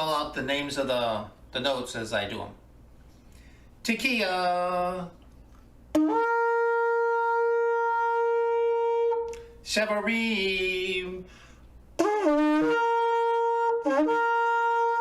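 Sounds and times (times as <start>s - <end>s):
shofar blasts: 5.9s - 9.3s, 12.0s - 15.0s.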